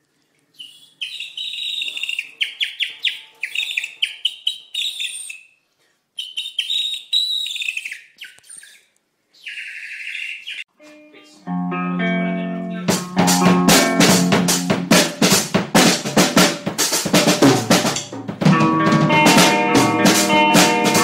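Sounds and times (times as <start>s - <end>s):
songbird chirping: 0.5s - 5.6s, 6.2s - 11.4s.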